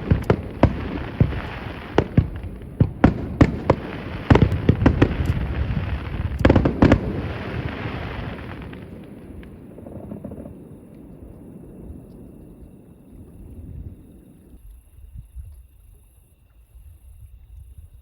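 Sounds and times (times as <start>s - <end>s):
distant fireworks bangs: 0.0s - 12.6s
rolling rumble: 0.0s - 14.4s.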